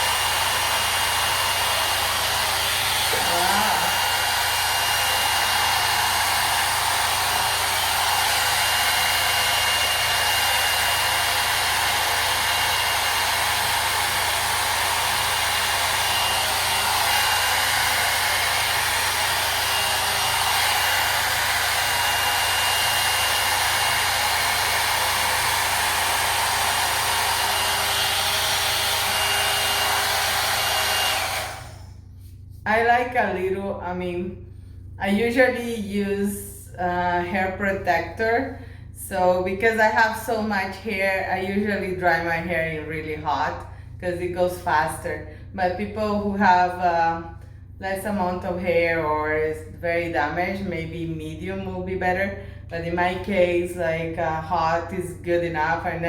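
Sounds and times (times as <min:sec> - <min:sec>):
hot-air brush blowing: 0:00.0 - 0:32.7.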